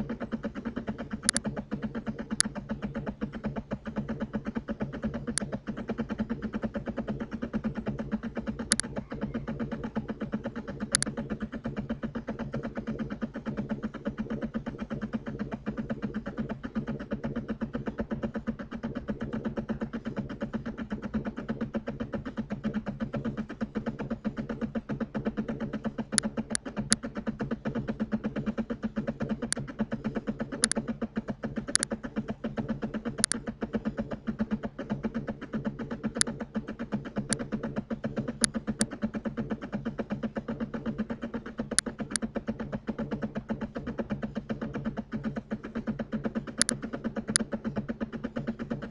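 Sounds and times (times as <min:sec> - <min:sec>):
computer mouse clicks: 0:00.0 - 0:17.2, 0:25.5 - 0:27.1, 0:29.2 - 0:34.5, 0:35.6 - 0:43.1, 0:45.7 - 0:48.9
electrical hum with buzz: 0:00.0 - 0:48.9.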